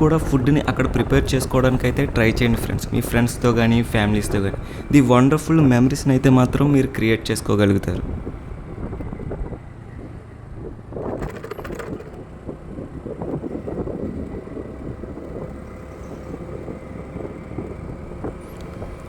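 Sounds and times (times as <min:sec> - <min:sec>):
vehicle engine and road rumble: 0:00.0 - 0:19.0
brief clatter: 0:11.0 - 0:12.3.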